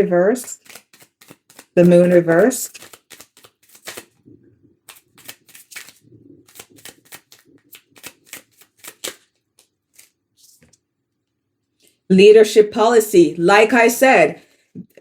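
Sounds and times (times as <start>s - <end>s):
cards being shuffled: 0.4s - 10.8s.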